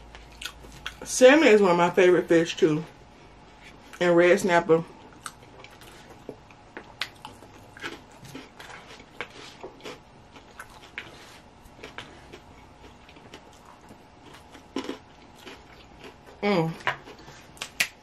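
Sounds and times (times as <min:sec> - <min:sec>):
person chewing salad: 0:00.0 - 0:01.1, 0:04.9 - 0:17.9.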